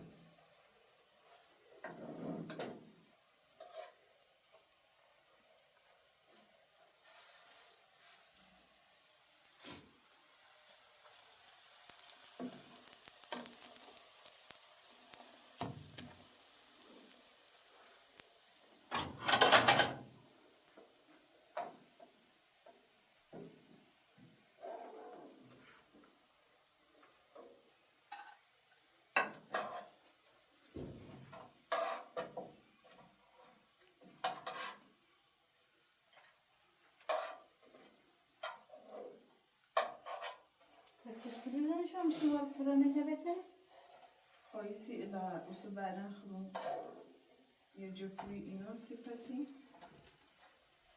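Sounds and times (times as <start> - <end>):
food sizzling in a pan: 0.0 - 50.9
pots and dishes clanking: 1.8 - 2.9, 18.9 - 20.1, 29.2 - 29.9, 34.1 - 34.8, 39.8 - 40.4.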